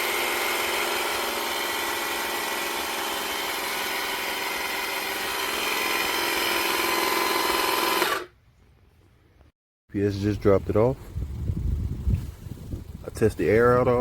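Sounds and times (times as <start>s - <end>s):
motor whirring: 0.0s - 8.3s.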